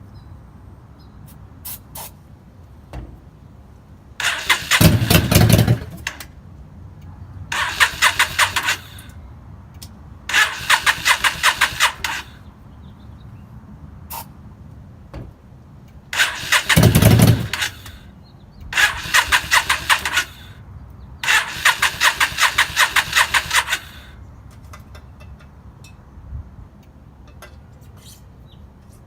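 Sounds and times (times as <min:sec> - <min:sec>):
engine cranking on starter: 0:04.2 - 0:06.3, 0:07.5 - 0:09.2, 0:10.3 - 0:12.4, 0:16.1 - 0:18.0, 0:18.7 - 0:20.6, 0:21.2 - 0:24.1.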